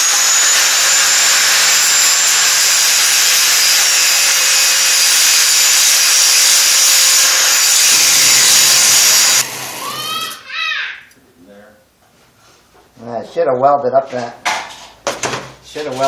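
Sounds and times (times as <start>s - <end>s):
grinder grinding steel: 0.0s - 10.4s.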